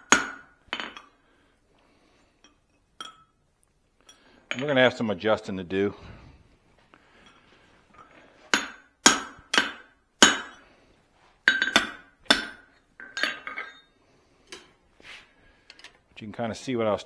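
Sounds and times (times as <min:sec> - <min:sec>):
hammer striking hot steel: 0:00.0 - 0:01.0, 0:08.5 - 0:10.6, 0:11.5 - 0:13.2.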